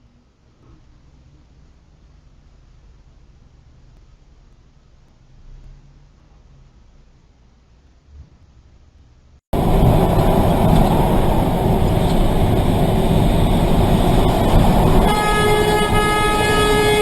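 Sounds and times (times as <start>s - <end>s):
heavy vehicle rumbling: 9.6s - 17.0s
loud multi-tone horn: 13.1s - 17.0s.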